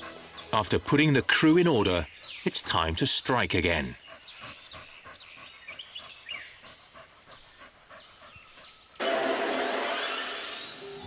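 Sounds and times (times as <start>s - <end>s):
faint outdoor ambience: 0.0s - 11.0s
bird chirps: 3.9s - 9.0s.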